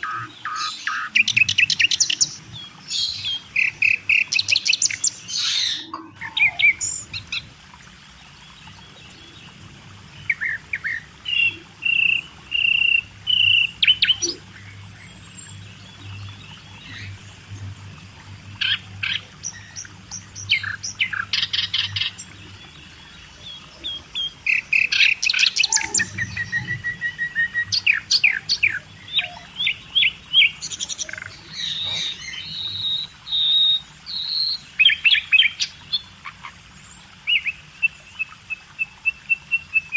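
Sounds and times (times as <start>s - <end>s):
small birds chirping and singing: 0.0s - 36.2s.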